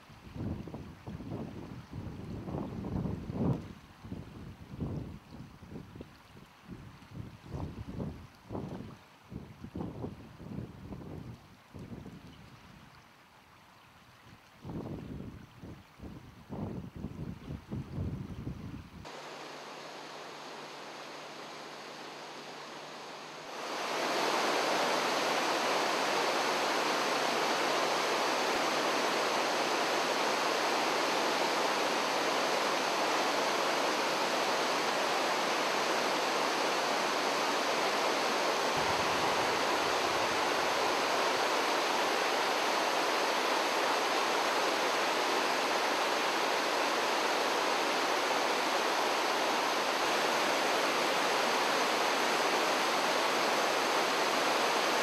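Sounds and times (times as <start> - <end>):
quiet hiss: 19.0 - 55.0
steady rushing noise: 19.0 - 55.0.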